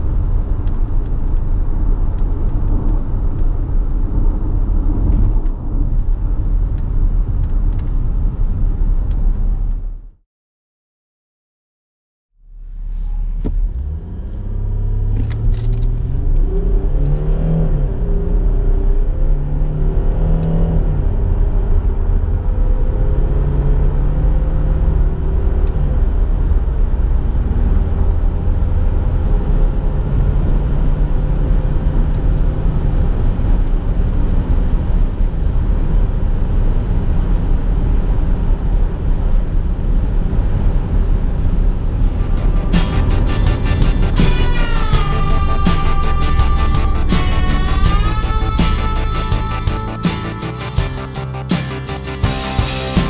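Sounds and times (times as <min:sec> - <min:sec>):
road and wind noise: 0:00.0 - 0:10.2, 0:12.4 - 0:53.0
diesel engine accelerating: 0:12.5 - 0:53.0.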